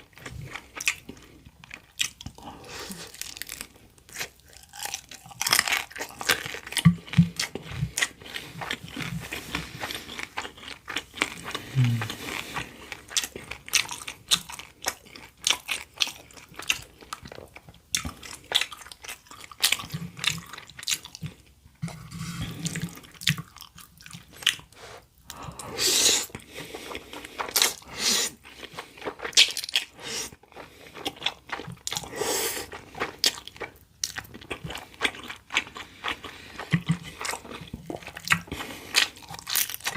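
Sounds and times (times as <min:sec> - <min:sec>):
wet chewing and mouth smacks: 0:00.0 - 0:21.8, 0:22.6 - 0:25.4, 0:26.2 - 0:39.9.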